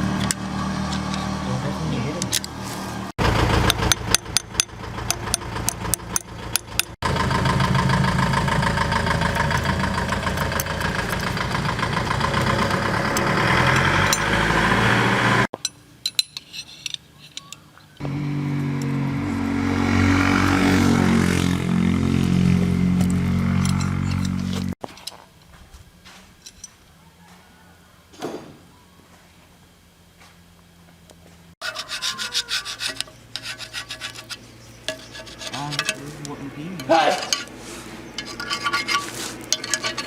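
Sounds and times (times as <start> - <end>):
engine running with pitched drone: 0.0 - 15.6, 18.0 - 24.8
sharp clicks and knocks: 3.6 - 7.0.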